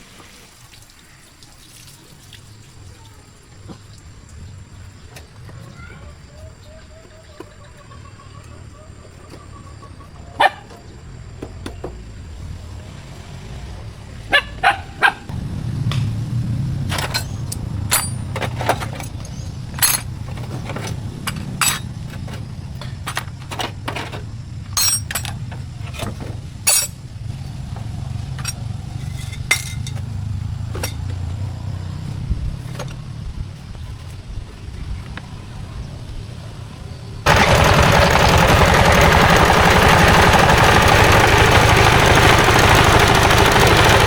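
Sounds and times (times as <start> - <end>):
engine rumbling: 8.6 - 44.0
sharp metallic clinks: 16.9 - 25.7, 26.7 - 27.1, 28.3 - 30.1.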